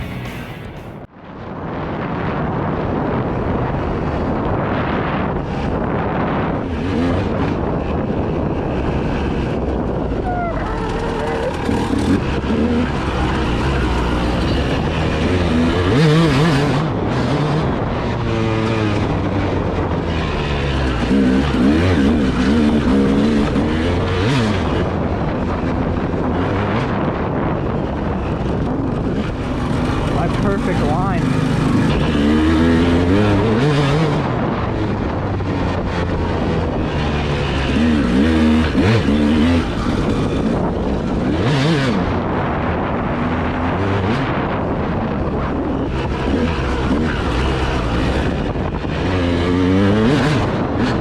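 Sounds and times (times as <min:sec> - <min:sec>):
vehicle engine running: 0:00.0 - 0:01.1, 0:28.1 - 0:33.5
vehicle running noise: 0:00.0 - 0:51.0
wind buffeting microphone: 0:00.0 - 0:51.0.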